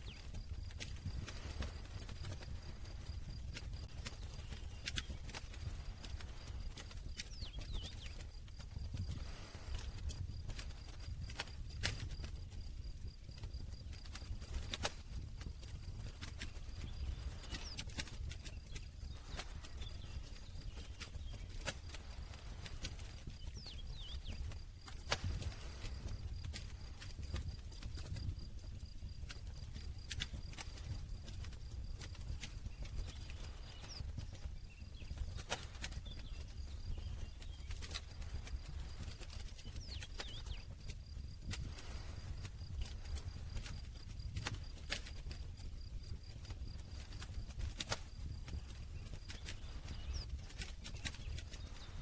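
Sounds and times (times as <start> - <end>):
campfire crackling and popping: 0.0 - 52.0
low rumble of flames: 0.0 - 52.0.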